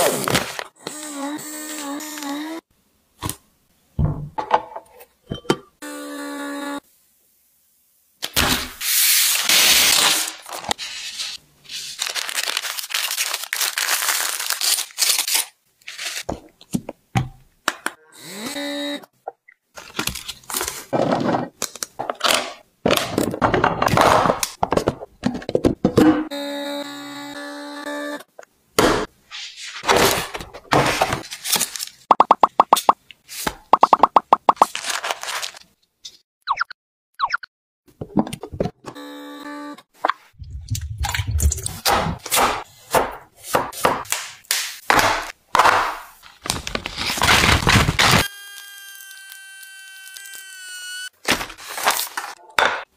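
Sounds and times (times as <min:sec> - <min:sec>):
plastic packaging crinkling: 0:11.7 - 0:16.3, 0:34.6 - 0:35.7, 0:46.2 - 0:48.2
items clicking and knocking: 0:20.9 - 0:26.2.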